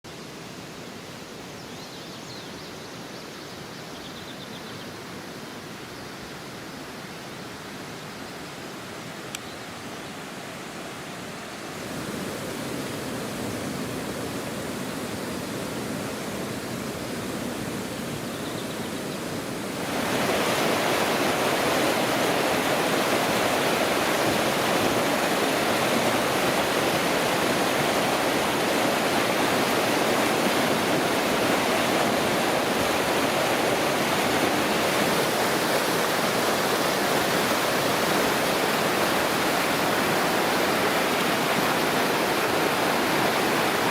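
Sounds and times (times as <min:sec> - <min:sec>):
rush of flowing water: 0:00.0 - 0:43.9.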